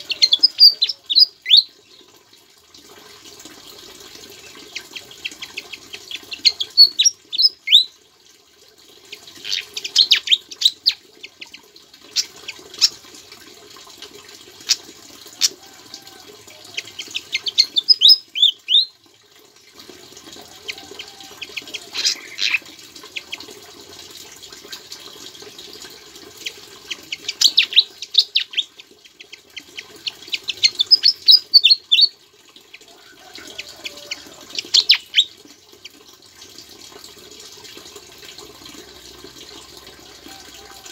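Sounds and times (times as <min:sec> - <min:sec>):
songbird singing: 0:00.0 - 0:02.1, 0:04.4 - 0:07.9, 0:16.6 - 0:18.9, 0:20.6 - 0:22.6, 0:26.9 - 0:29.4, 0:30.0 - 0:32.1.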